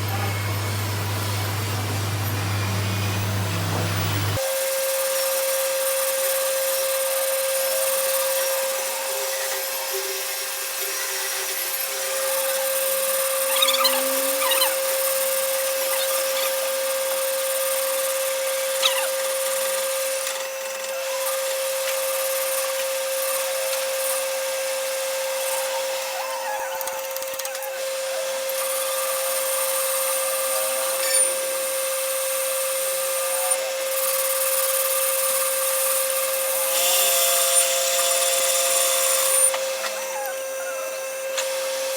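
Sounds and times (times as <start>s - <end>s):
power tool motor whining: 0.0s - 41.9s.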